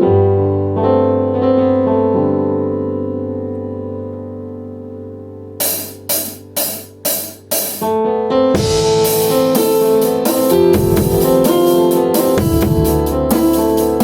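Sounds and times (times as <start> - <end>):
sustained piano chords: 0.0 - 14.0
drum kit beat with cymbals: 5.6 - 7.9, 8.6 - 14.0.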